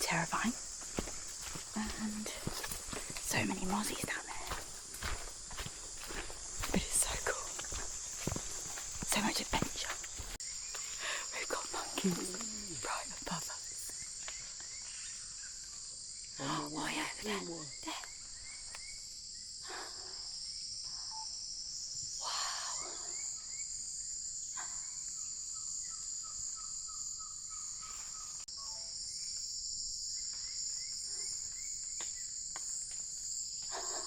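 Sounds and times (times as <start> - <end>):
birds chirping: 0.0 - 15.6
insect chorus drone: 0.0 - 34.0.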